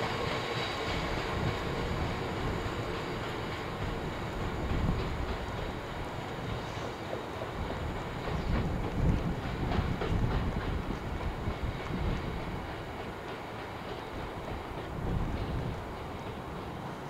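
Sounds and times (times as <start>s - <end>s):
wheel clacks over rail joints: 0.0s - 16.9s
train wagons rumbling: 0.0s - 17.0s.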